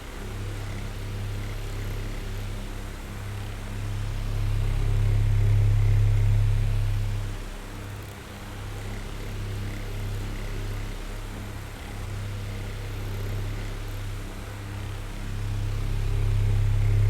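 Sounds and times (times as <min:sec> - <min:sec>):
electric fan running: 0:15.0 - 0:17.0.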